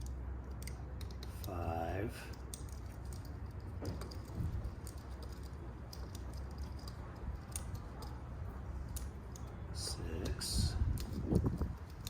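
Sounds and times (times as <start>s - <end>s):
metallic wrench clicks and taps: 0.0s - 1.4s, 2.3s - 8.1s
low background hum: 0.0s - 12.0s.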